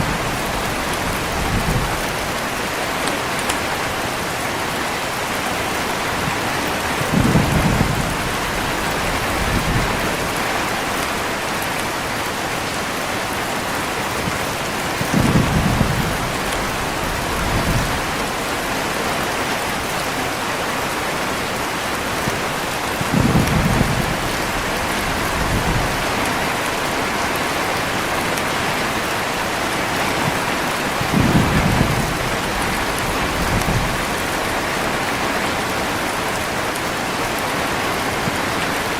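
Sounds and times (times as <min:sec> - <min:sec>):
thunder rolling: 0:00.0 - 0:02.4, 0:06.9 - 0:10.8, 0:15.0 - 0:18.4, 0:23.0 - 0:26.4, 0:30.2 - 0:34.6
heavy rain falling: 0:00.0 - 0:38.9.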